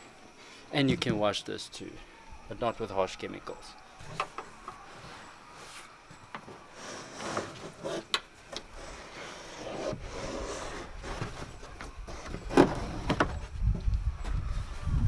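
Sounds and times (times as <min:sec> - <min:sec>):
panel rubbing and scraping: 0:06.5 - 0:13.6.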